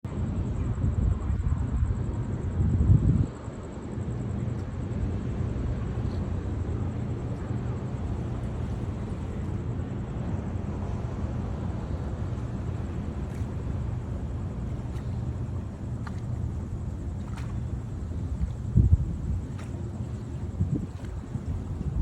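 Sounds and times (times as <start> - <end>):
ferry diesel engines rumbling: 4.7 - 22.0.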